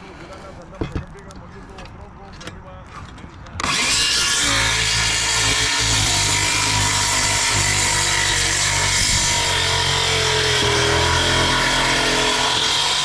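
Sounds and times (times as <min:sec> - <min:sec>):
power saw cutting roofing: 0:03.6 - 0:13.0.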